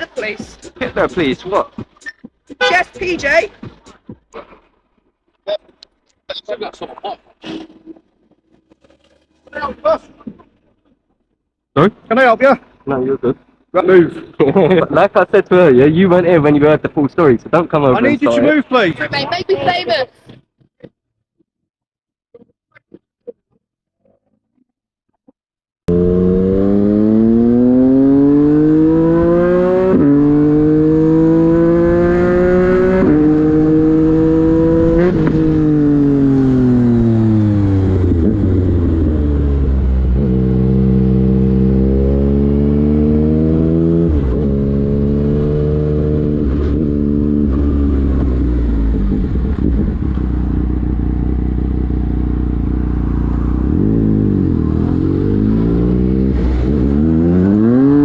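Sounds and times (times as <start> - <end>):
motorcycle engine accelerating: 25.9 - 58.0.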